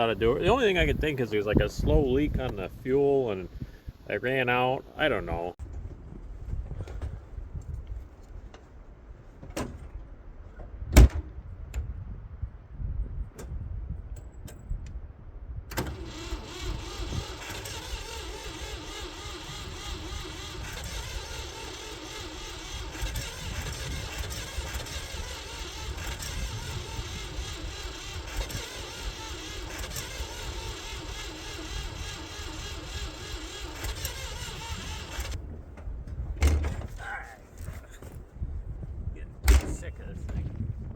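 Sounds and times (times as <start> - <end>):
engine cranking on starter: 15.7 - 37.2.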